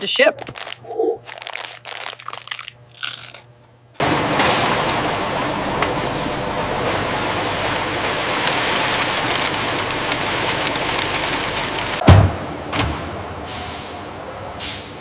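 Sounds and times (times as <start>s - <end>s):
faint crunches: 0.4s - 3.5s
loud steady machine noise: 3.9s - 12.0s.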